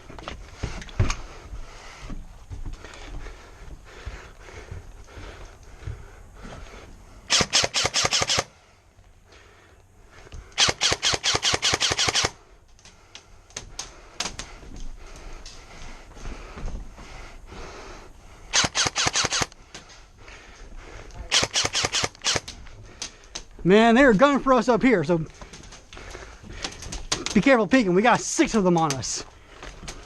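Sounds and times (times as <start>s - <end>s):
airsoft gun full-auto bursts: 7.3s - 8.5s, 10.6s - 12.4s, 18.5s - 19.5s, 21.3s - 22.5s.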